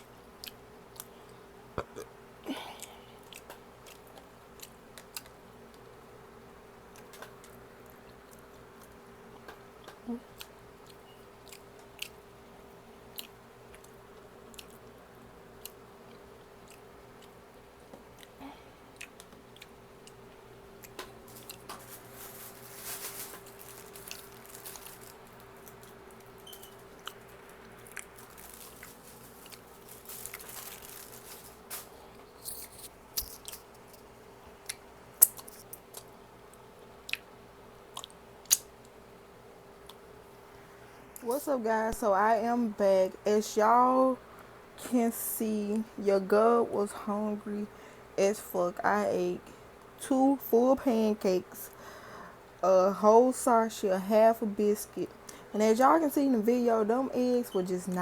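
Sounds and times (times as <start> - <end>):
faint steady hum: 0.0 - 58.0
person chewing and biting: 18.0 - 21.7.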